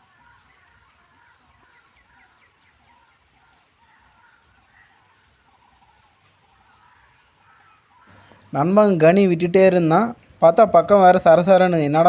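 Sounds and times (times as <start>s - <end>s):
distant animal chirps: 0.0s - 12.0s.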